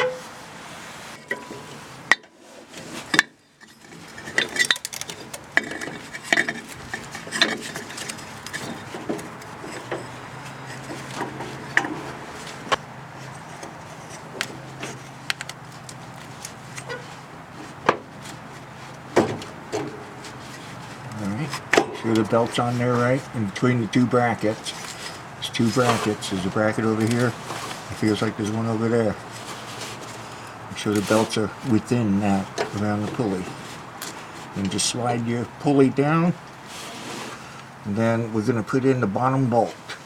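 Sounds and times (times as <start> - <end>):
metallic clinks and knocks: 3.1 - 17.1.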